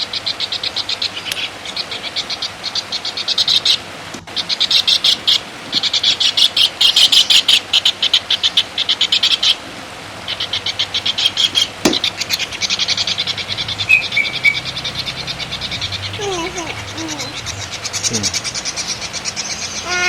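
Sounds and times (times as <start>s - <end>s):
songbird chattering trill: 10.2s - 20.0s.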